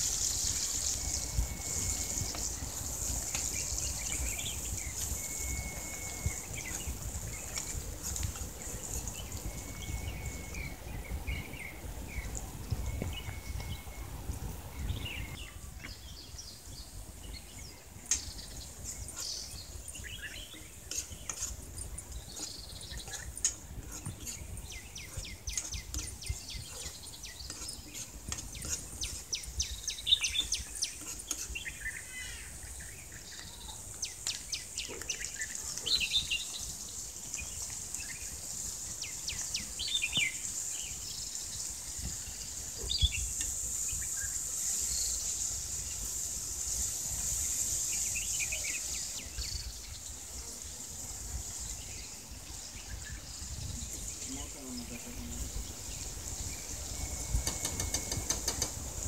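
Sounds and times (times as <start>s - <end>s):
high insect-like hiss: 0.0s - 12.9s, 13.9s - 59.0s
small birds chirping: 0.0s - 59.0s.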